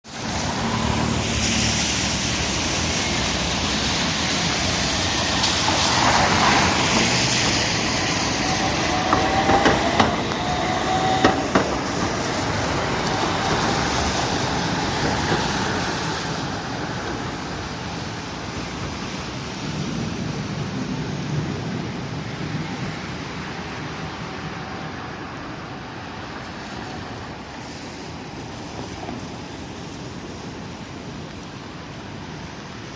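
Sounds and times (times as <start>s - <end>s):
streetcar running on tracks: 0.0s - 32.9s.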